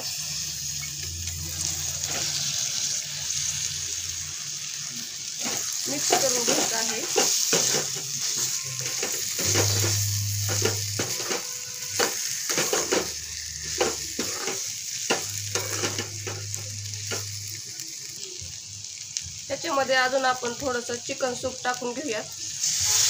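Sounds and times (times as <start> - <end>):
food sizzling in a wok: 0.0 - 23.0
metal spatula scraping a pan: 5.4 - 17.3.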